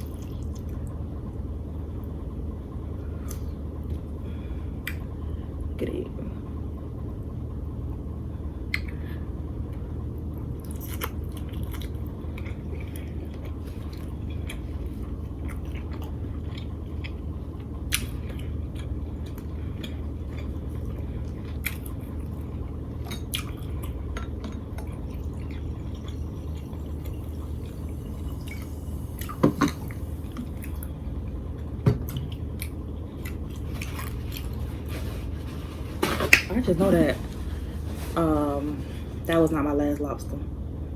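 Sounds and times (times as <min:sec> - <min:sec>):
steady low hum: 0:00.0 - 0:40.9
person chewing and smacking: 0:10.6 - 0:29.4, 0:32.0 - 0:34.9.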